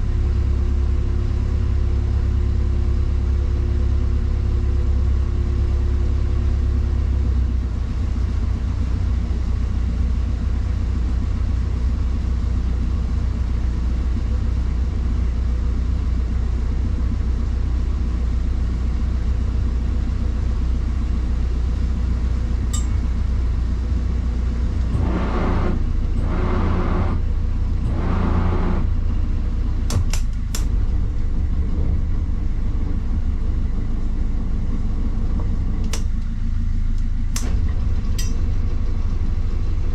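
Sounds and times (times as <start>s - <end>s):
boat engine droning: 22.5s - 39.9s
sharp clicks: 29.9s - 30.8s, 35.8s - 36.3s.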